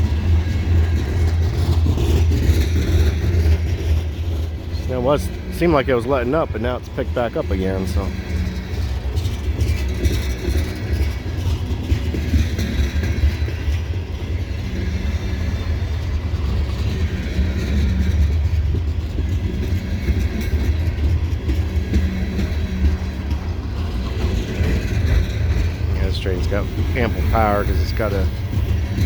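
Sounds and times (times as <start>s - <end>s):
faint diesel hum: 0.0s - 29.0s
freight train rumbling past: 0.0s - 29.0s
wheels clicking over rails: 0.0s - 29.0s.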